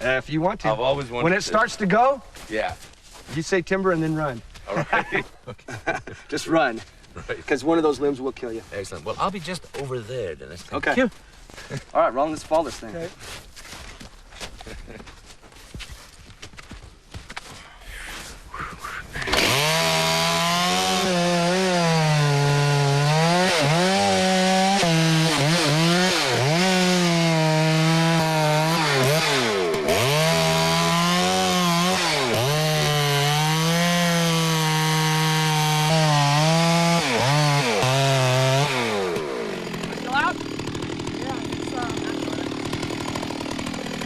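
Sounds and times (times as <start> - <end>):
chainsaw cutting wood: 18.1 - 44.0.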